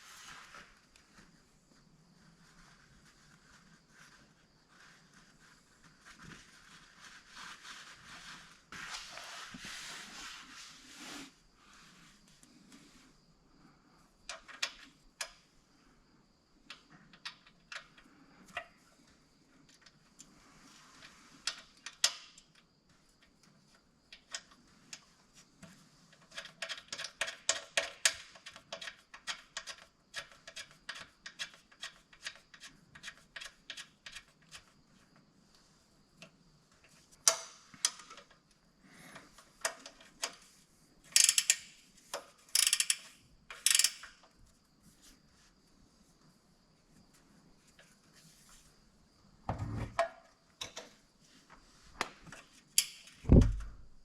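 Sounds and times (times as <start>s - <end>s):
ratchet wrench clicking: 41.1s - 44.2s, 52.8s - 53.1s.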